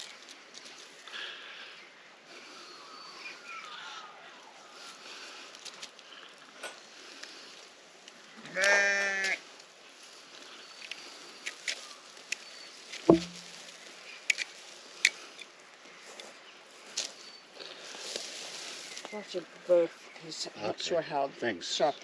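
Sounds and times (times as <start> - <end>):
animal bleating: 8.4 - 9.4
sharp thump: 13.1 - 13.6.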